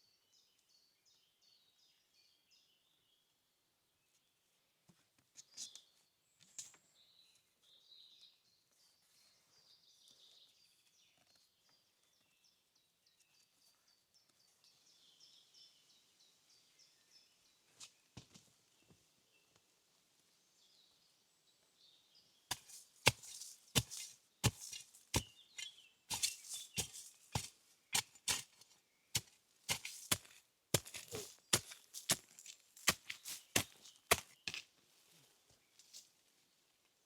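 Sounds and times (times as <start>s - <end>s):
wood chopping strikes: 22.5s - 28.6s, 29.2s - 34.6s.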